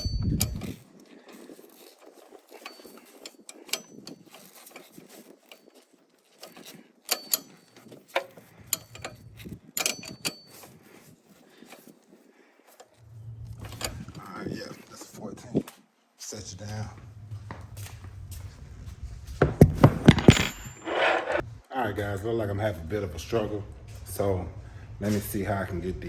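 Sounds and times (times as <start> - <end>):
metal wrenches clinking: 0.0 - 12.0, 19.6 - 21.4.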